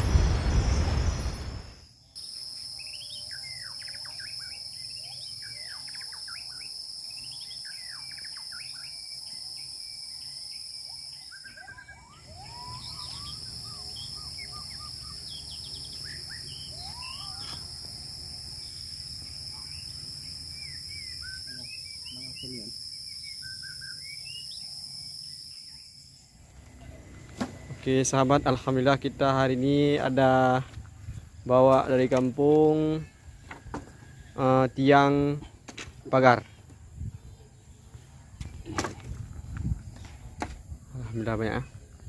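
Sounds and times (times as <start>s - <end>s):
high insect drone: 0.0s - 42.0s
birds chirping and calling: 2.2s - 35.4s.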